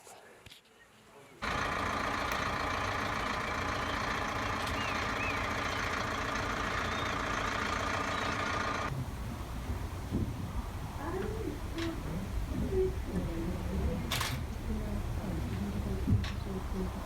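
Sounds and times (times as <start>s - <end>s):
vehicle engine running: 1.4s - 17.0s
bird chirps: 3.0s - 8.9s.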